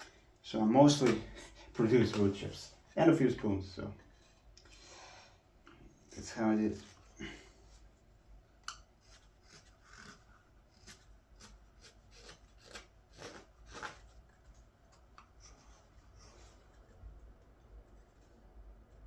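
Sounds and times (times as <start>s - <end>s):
knife slicing green wood: 8.7s - 14.0s.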